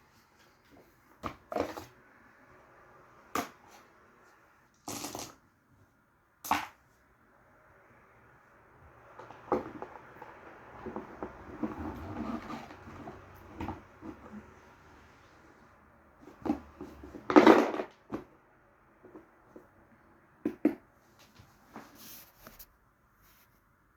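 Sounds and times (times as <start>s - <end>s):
scraping rustle: 21.6s - 23.6s.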